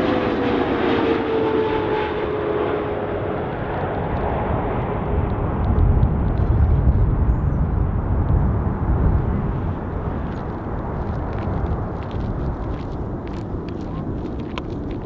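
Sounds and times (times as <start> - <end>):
jet engine roar and whine: 0.0 - 15.0
deep rumble: 3.9 - 15.0.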